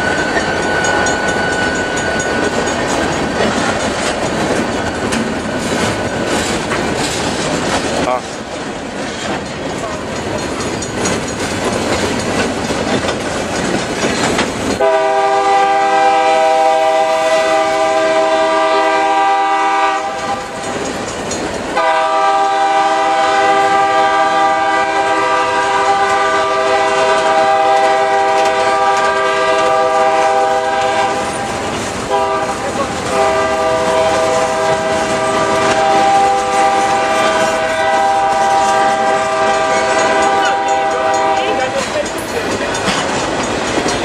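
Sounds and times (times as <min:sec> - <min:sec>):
freight train wheels clattering: 0:00.0 - 0:44.0
locomotive air horn: 0:14.8 - 0:20.6, 0:21.8 - 0:31.5, 0:32.1 - 0:41.6.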